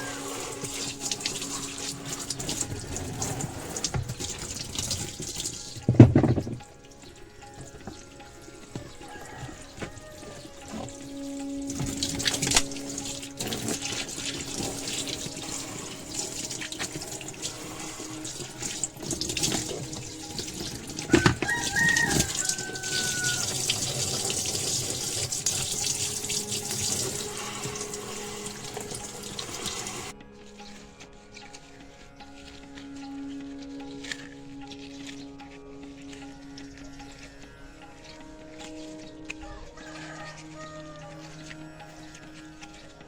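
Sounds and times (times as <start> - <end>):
water splashing in washing machine: 0.0 - 30.2.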